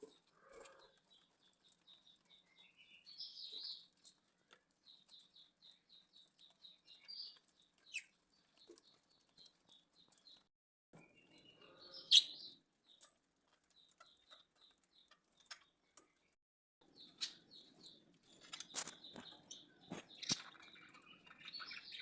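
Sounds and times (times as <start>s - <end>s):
budgerigars chirping: 11.4s - 12.6s, 17.0s - 22.0s.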